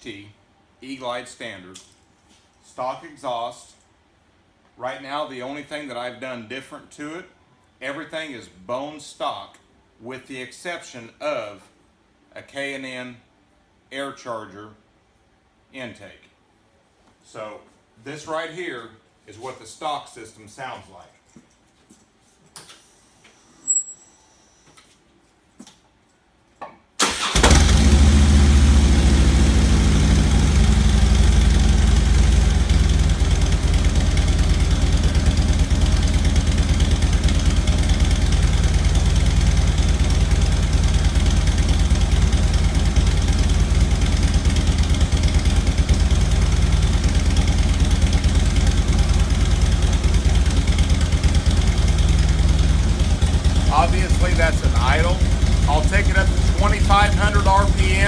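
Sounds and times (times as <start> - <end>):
motorcycle engine idling: 27.7 - 58.0.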